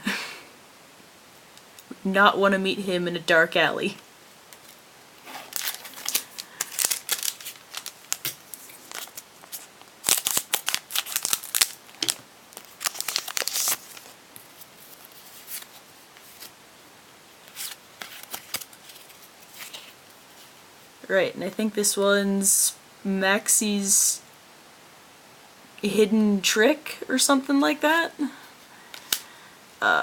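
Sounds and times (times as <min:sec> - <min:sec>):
foil wrapper tearing and crinkling: 0:04.6 - 0:16.5, 0:17.5 - 0:20.0.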